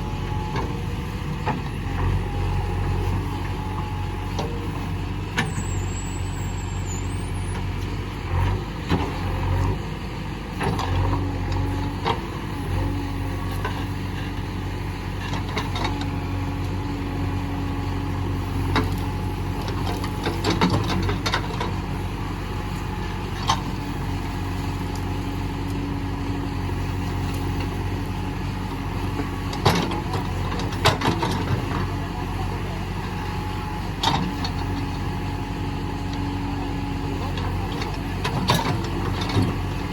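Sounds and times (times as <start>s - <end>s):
diesel engine running: 0.0s - 39.9s
knocks and clanks of digger bucket: 18.6s - 21.9s, 29.1s - 32.1s, 37.1s - 39.9s.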